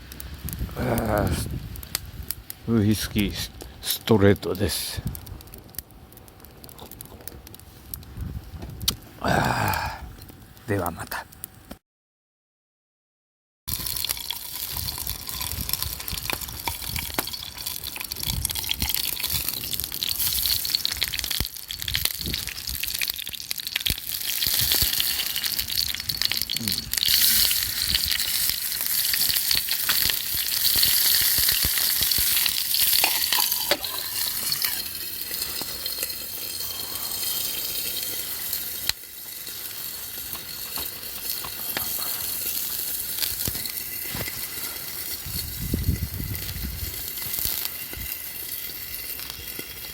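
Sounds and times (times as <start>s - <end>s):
food sizzling in a hot pan: 13.7s - 49.9s.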